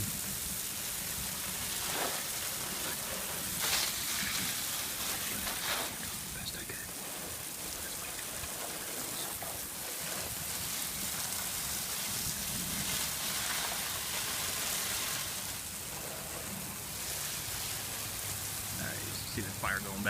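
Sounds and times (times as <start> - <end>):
garden hose spraying water: 0.0 - 20.0.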